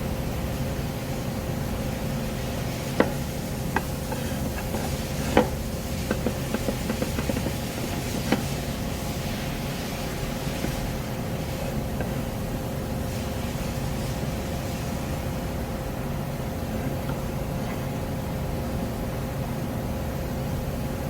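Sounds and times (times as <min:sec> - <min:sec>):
wooden knocks and clacks: 0:03.0 - 0:08.8.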